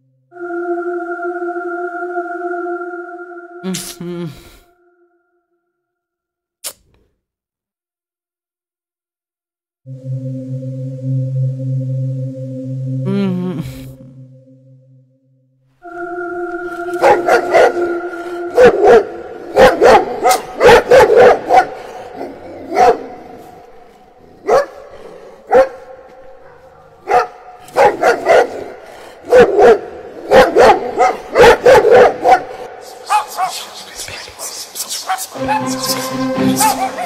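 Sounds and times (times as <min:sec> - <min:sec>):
steady held tone: 0:00.0 - 0:05.4, 0:09.9 - 0:20.6
dog barking: 0:18.6 - 0:23.5, 0:24.4 - 0:24.9, 0:25.5 - 0:33.7, 0:35.0 - 0:35.7.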